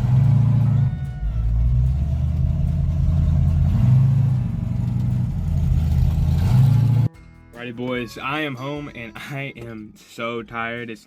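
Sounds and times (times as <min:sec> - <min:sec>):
vehicle engine droning: 0:00.0 - 0:07.1.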